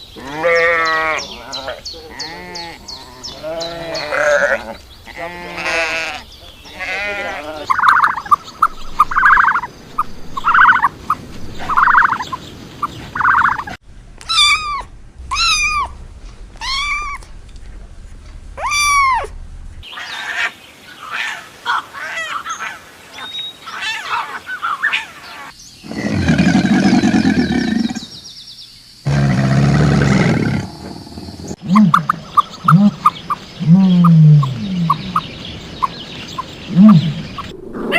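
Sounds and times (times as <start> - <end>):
high rising and falling calls: 13.1 - 16.0, 16.6 - 17.3, 18.6 - 19.3
long low roar-like call: 25.8 - 28.1, 29.1 - 32.1.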